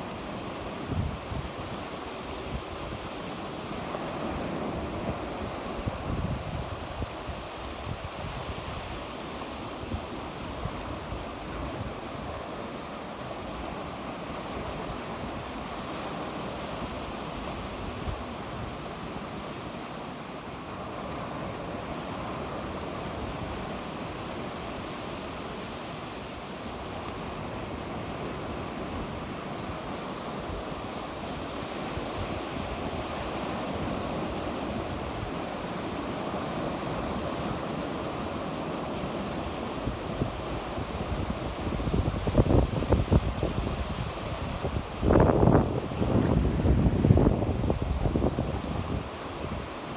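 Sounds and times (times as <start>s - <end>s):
sea waves breaking on shore: 0.0s - 49.9s
wind buffeting microphone: 4.8s - 9.0s, 39.8s - 49.8s.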